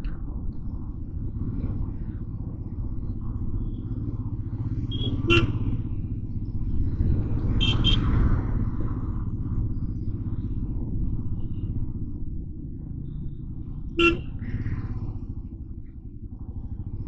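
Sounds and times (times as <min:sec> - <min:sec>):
motorcycle engine running: 0:00.0 - 0:17.0
vehicle horns honking: 0:04.9 - 0:05.6, 0:07.6 - 0:08.0, 0:14.0 - 0:14.4.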